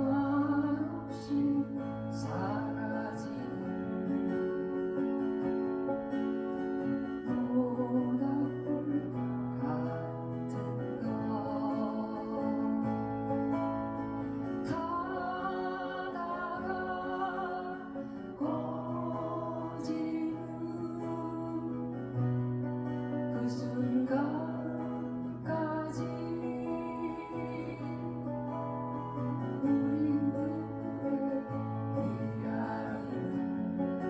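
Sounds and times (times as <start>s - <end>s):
acoustic guitar: 0.0s - 34.0s.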